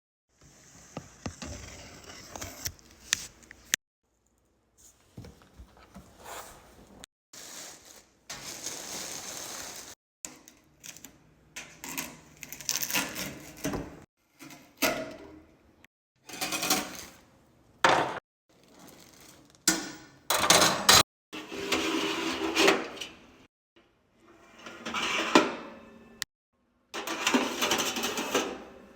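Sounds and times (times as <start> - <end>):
cardboard and plastic packaging rustling: 4.8 - 10.0.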